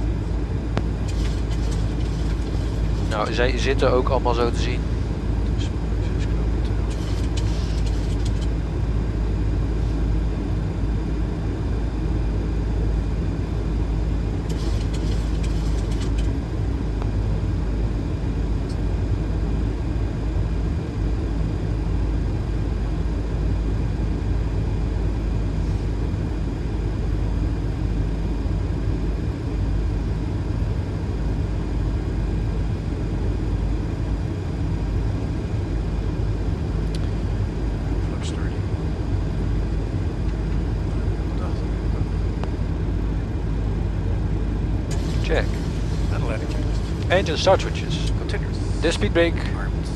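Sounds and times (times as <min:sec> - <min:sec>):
cockpit airflow and engine rumble: 0:00.0 - 0:49.9
brief hissy bursts: 0:44.9 - 0:47.3.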